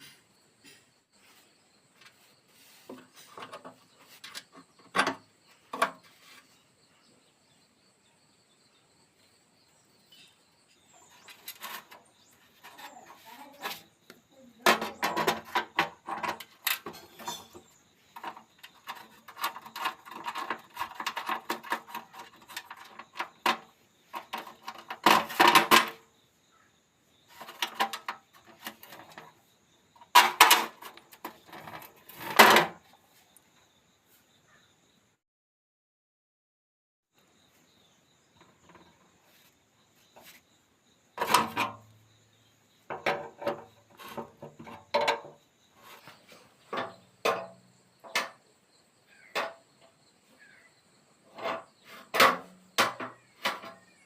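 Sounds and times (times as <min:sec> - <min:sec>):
hard parts clinking and knocking: 0:14.6 - 0:26.0, 0:27.4 - 0:29.4, 0:30.0 - 0:32.8, 0:42.9 - 0:45.4, 0:46.1 - 0:48.4.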